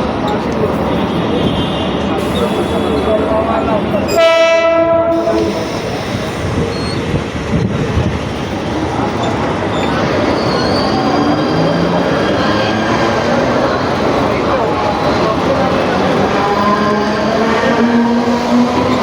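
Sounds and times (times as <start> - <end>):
electric train rumbling: 0.0 - 19.0
train horn: 4.1 - 5.6.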